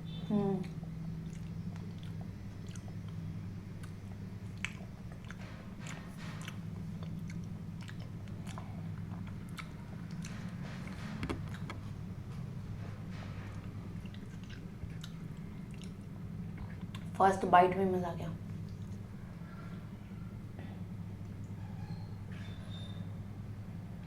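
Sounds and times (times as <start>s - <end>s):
steady low hum: 0.0s - 24.0s
wet chewing and mouth clicks: 0.6s - 12.0s, 13.5s - 17.2s.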